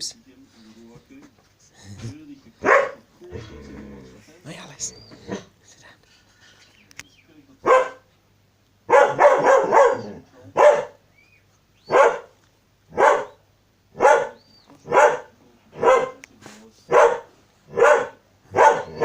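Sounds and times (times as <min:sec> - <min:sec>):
dog barking: 0:02.6 - 0:03.0, 0:07.6 - 0:08.1, 0:08.9 - 0:11.0, 0:11.9 - 0:13.4, 0:14.0 - 0:16.2, 0:16.9 - 0:19.0.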